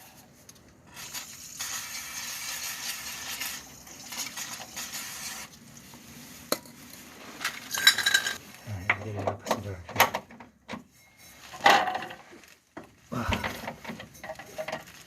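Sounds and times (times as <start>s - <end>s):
aerosol spray can hissing: 0.9s - 5.5s.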